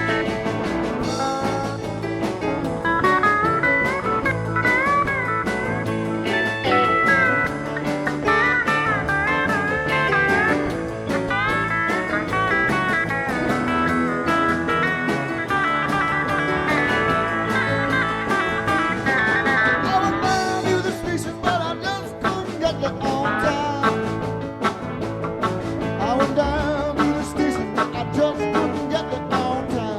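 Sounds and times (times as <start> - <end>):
lead guitar bending notes: 0.0 - 29.9
live rock band: 0.0 - 29.9.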